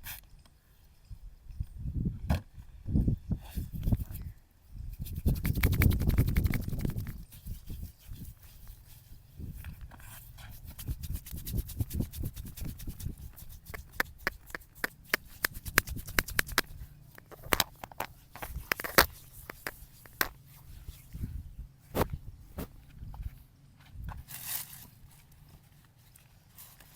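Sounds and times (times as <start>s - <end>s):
razor scraping beard stubble: 5.0s - 8.9s, 10.5s - 17.6s, 18.4s - 20.4s.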